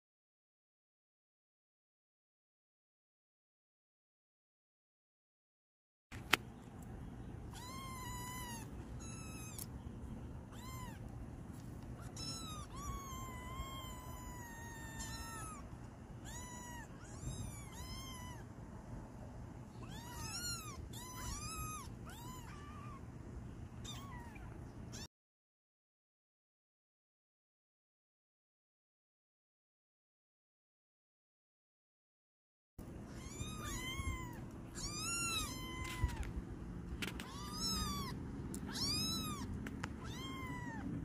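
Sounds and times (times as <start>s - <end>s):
sharp click: 6.2s - 6.9s
low steady hum: 6.2s - 25.1s, 32.8s - 41.0s.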